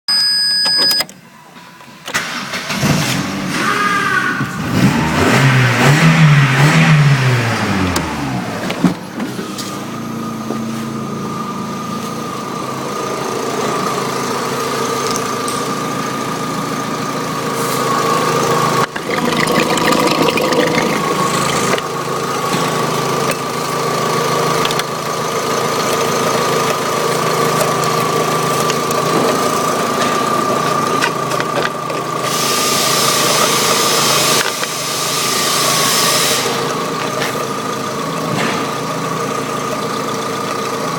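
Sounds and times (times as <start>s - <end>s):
car engine starting and idling: 2.0s - 3.6s.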